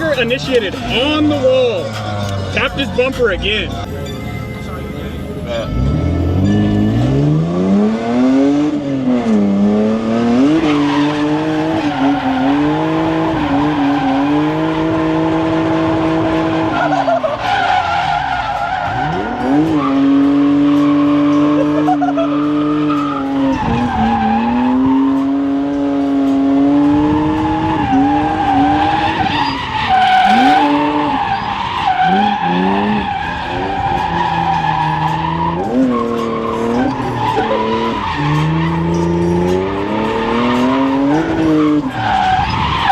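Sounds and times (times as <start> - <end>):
car engine revving hard: 5.6 - 42.8
tyres squealing: 27.1 - 42.9.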